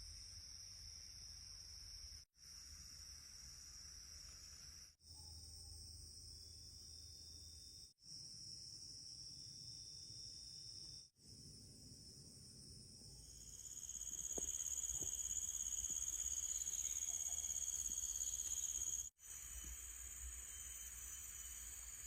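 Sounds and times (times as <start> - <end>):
faint insect chorus: 0.0 - 22.0
night insects trilling: 13.2 - 22.0.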